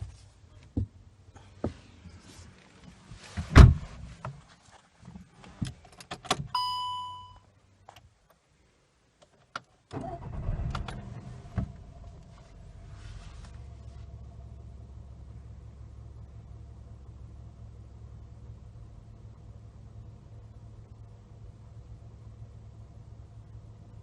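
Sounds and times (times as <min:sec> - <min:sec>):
loud thump: 0:03.5 - 0:03.9
electronic chime: 0:06.6 - 0:07.4
car engine starting and idling: 0:09.9 - 0:24.0.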